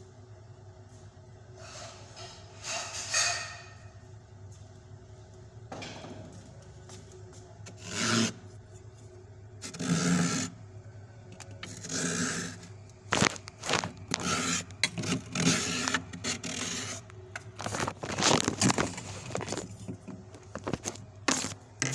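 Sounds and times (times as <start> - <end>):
knife scraping frost: 7.7 - 8.4, 9.6 - 10.6, 11.6 - 19.7.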